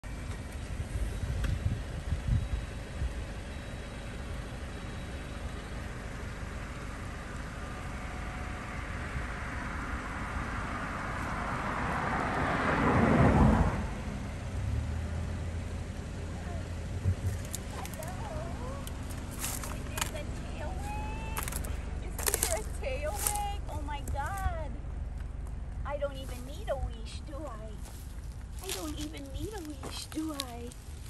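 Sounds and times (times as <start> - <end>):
steady low rumble: 0.0 - 11.8, 13.5 - 31.0
vehicle passing: 6.6 - 31.0.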